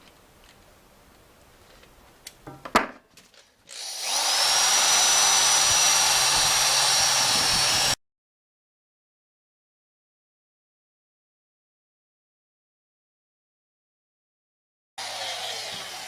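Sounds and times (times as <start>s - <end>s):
wire wheel power tool whining: 3.7s - 8.0s, 15.0s - 16.0s.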